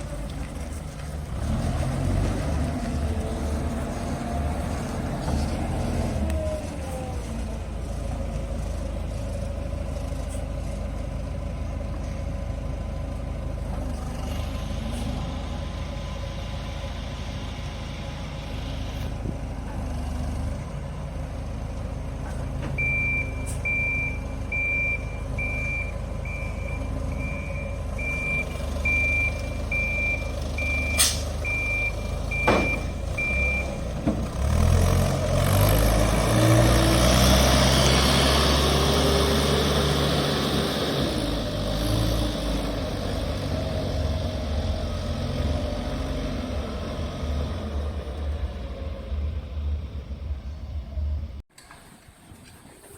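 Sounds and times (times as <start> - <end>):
diesel engine running: 0.0 - 51.4
reversing alarm beeping: 22.8 - 33.8.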